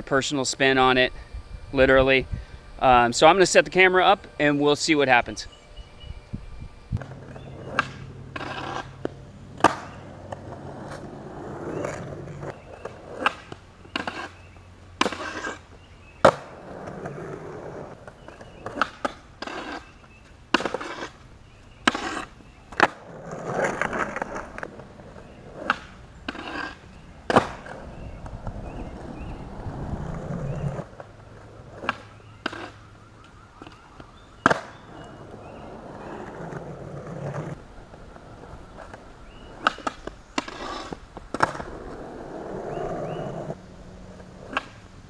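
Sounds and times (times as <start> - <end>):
skateboard rolling: 6.0 - 45.0
skateboard clacks: 44.3 - 44.8.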